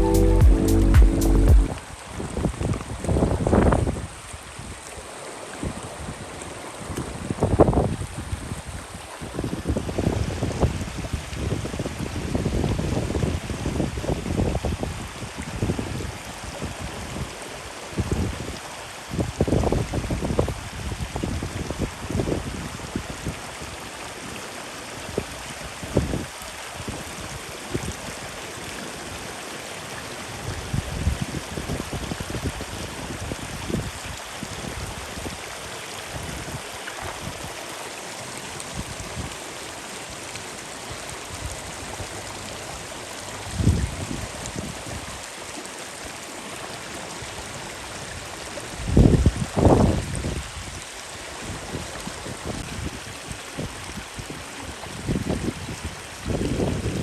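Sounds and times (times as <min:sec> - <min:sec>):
rushing water: 0:00.0 - 0:57.0
wind buffeting microphone: 0:01.7 - 0:04.7, 0:06.9 - 0:17.3, 0:43.4 - 0:45.2, 0:48.0 - 0:50.8, 0:51.4 - 0:57.0.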